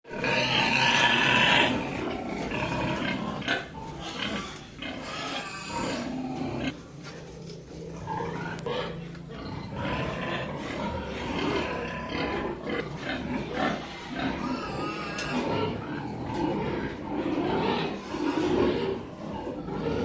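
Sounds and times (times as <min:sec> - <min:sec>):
piglets squealing and grunting: 0:00.1 - 0:20.0.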